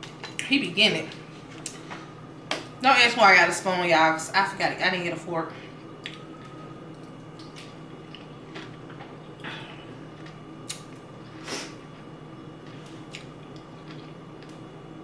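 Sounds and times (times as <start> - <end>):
faint hum: 0.0 - 15.0
chewing smacks and clicks: 6.0 - 9.1.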